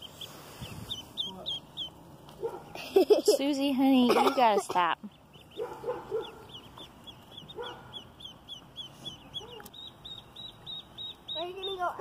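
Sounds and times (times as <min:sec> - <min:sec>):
lower duckling calls: 0:00.0 - 0:02.1, 0:05.1 - 0:12.0
ducklings peeping: 0:00.0 - 0:12.0.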